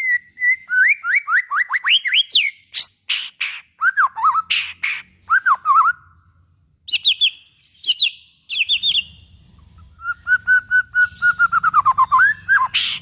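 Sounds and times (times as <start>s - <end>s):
bird singing whistled phrases: 0.0s - 6.1s, 6.9s - 9.2s, 9.9s - 13.0s.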